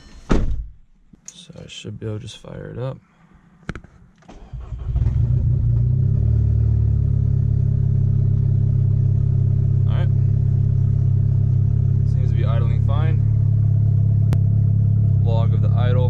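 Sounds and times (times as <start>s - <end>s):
car engine starting and idling: 4.2s - 16.0s.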